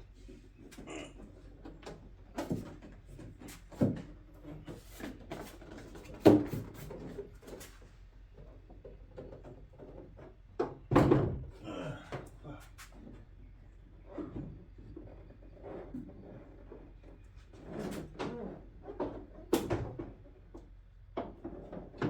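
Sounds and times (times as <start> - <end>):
car hood knocking and clunking: 10.6 - 11.5.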